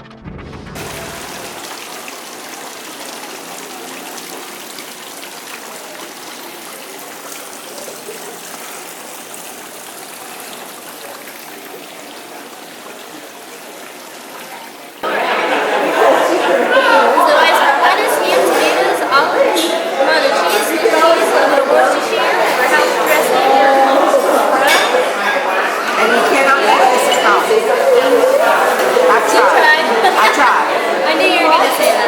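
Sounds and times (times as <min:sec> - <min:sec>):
running splashing water: 0:00.8 - 0:15.0.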